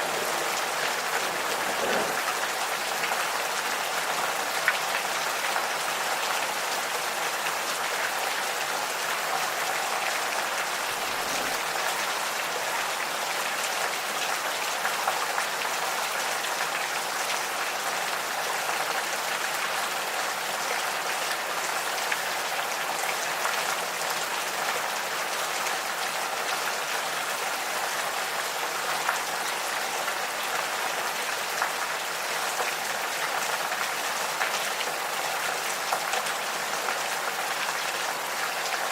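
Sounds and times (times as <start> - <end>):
gentle rain falling: 0.0 - 38.9.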